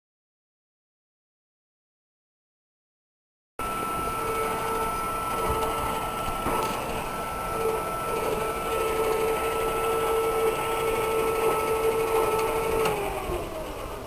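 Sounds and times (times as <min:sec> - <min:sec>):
electric motor and gears whining: 0:03.6 - 0:14.0.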